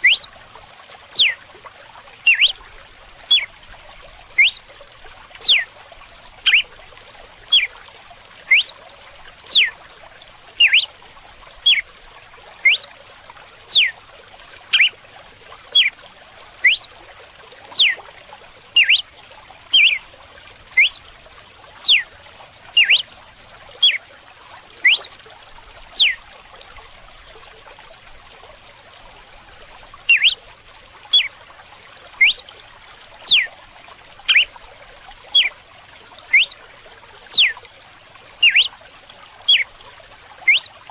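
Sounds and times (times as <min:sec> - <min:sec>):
bird whistling downward notes: 0:00.0 - 0:00.3, 0:01.1 - 0:01.4, 0:02.3 - 0:02.6, 0:04.4 - 0:04.6, 0:05.4 - 0:05.6, 0:06.5 - 0:06.7, 0:08.5 - 0:08.8, 0:09.5 - 0:09.7, 0:10.6 - 0:10.9, 0:11.6 - 0:11.8, 0:12.6 - 0:12.9, 0:13.7 - 0:13.9, 0:16.6 - 0:16.9, 0:17.7 - 0:18.0, 0:18.8 - 0:19.0, 0:19.8 - 0:20.0, 0:20.8 - 0:21.0, 0:21.8 - 0:22.0, 0:22.8 - 0:23.1, 0:24.8 - 0:25.1, 0:25.9 - 0:26.2, 0:30.1 - 0:30.4, 0:32.2 - 0:32.4, 0:33.2 - 0:33.5, 0:34.3 - 0:34.5, 0:35.3 - 0:35.5, 0:36.3 - 0:36.6, 0:37.3 - 0:37.6, 0:38.4 - 0:38.7, 0:39.5 - 0:39.7, 0:40.4 - 0:40.7
trickling running water: 0:00.0 - 0:40.9.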